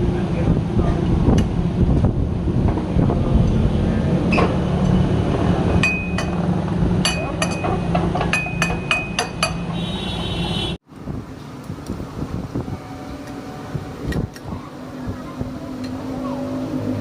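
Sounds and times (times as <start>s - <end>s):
hammer striking steel: 5.8s - 9.8s.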